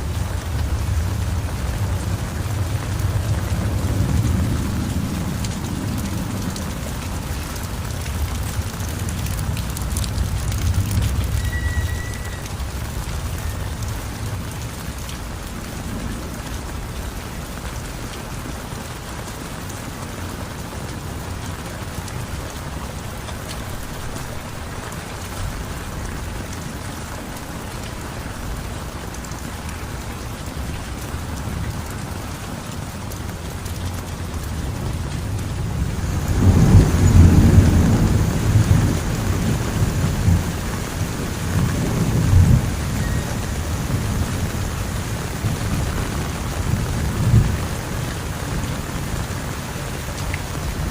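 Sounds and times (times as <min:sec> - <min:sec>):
deep thunder rumble: 0:00.0 - 0:15.0, 0:34.1 - 0:49.0
heavy rain falling: 0:00.0 - 0:50.9.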